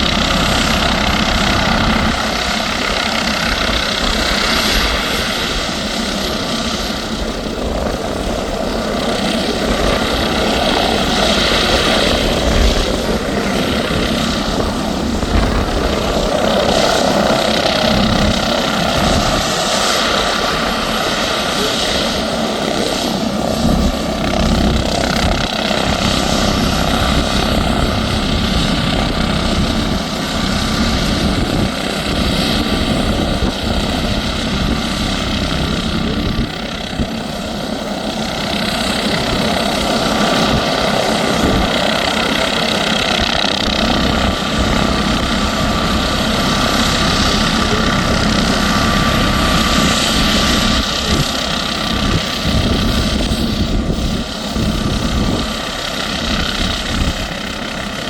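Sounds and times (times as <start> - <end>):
helicopter turbine and rotor: 0.0 - 58.0.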